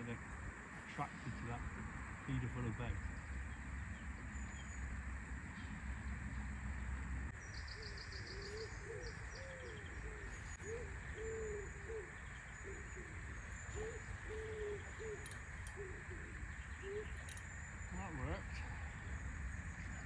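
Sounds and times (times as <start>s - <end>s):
bird cooing: 7.6s - 19.2s.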